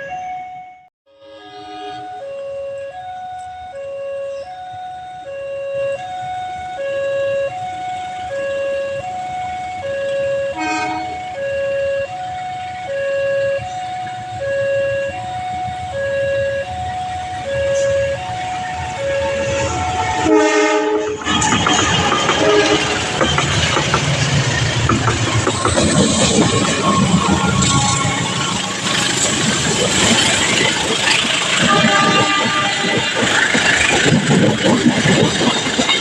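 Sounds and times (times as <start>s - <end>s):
level crossing two-tone alarm: 1.6s - 21.0s.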